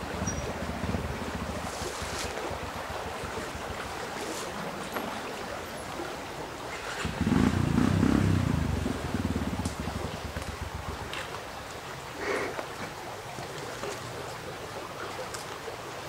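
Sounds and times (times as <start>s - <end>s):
motorcycle engine running: 0.0s - 4.3s, 6.7s - 11.6s.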